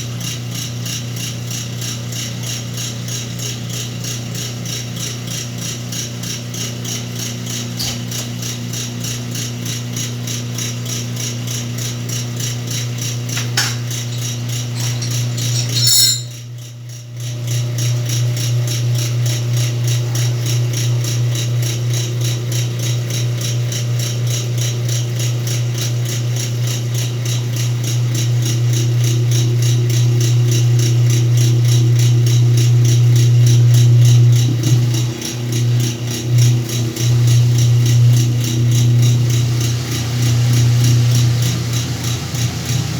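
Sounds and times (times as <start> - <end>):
washing machine motor hum: 4.2 - 16.4, 17.4 - 42.9.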